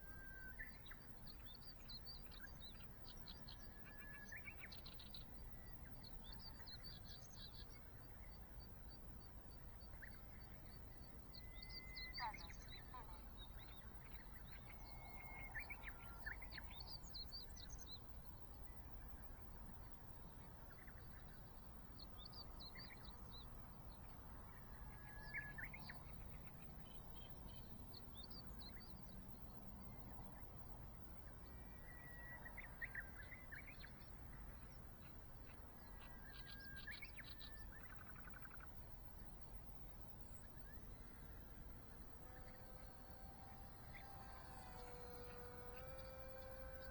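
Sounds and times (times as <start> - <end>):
small birds chirping: 0.0 - 46.9
low steady rumble: 39.7 - 46.9.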